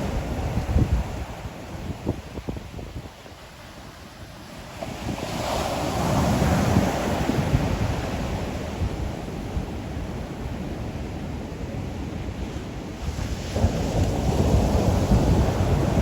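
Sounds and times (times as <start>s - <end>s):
ocean waves breaking on shore: 0.0s - 16.0s
wind buffeting microphone: 0.0s - 16.0s.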